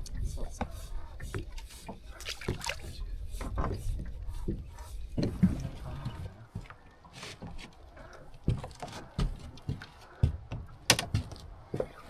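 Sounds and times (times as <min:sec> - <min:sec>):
knocks and thumps on boat hull: 0:03.4 - 0:05.8, 0:08.4 - 0:12.0.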